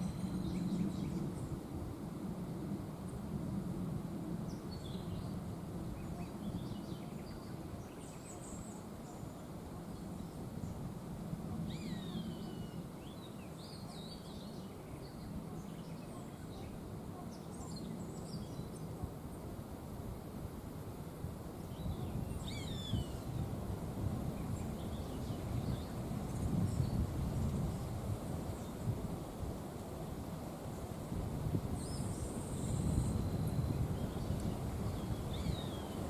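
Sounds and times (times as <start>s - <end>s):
wind rushing through trees: 0.0s - 36.0s.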